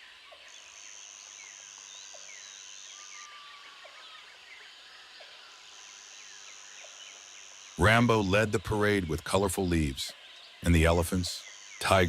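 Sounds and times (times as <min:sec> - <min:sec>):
high insect buzz: 0:00.5 - 0:08.0.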